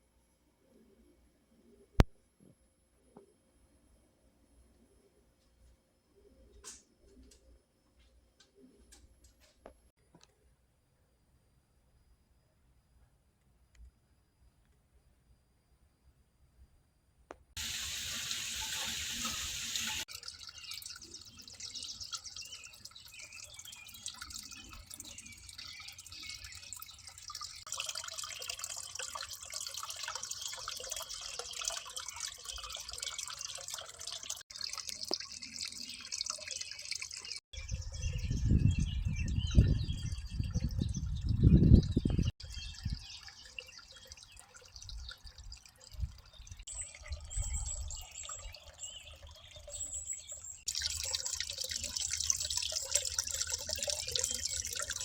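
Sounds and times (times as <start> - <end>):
water trickling and dripping: 17.6 - 37.4, 40.1 - 55.0.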